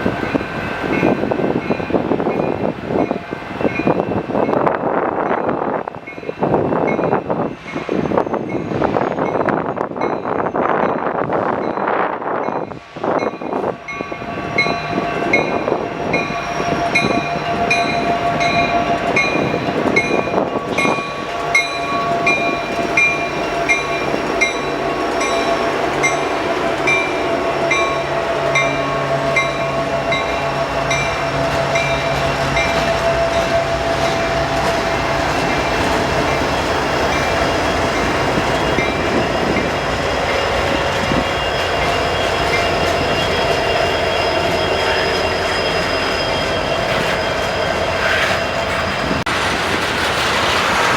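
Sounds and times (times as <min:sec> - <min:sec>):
train rail rumble: 0:00.0 - 0:50.9
railroad crossing bell ringing: 0:11.7 - 0:48.1.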